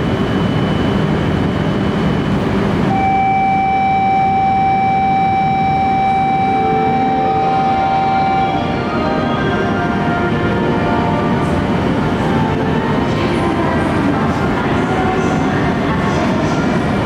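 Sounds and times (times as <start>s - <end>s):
train rumbling on track: 0.0s - 3.0s, 6.3s - 17.0s
steady electronic tone: 2.8s - 12.6s.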